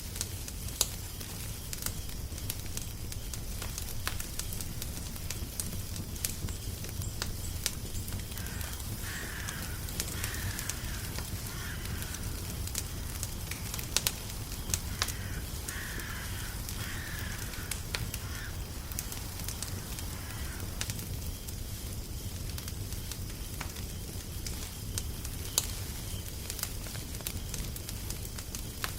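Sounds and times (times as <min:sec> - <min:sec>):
wood fire crackling and popping: 0:00.0 - 0:28.9
bird calling: 0:08.2 - 0:20.9.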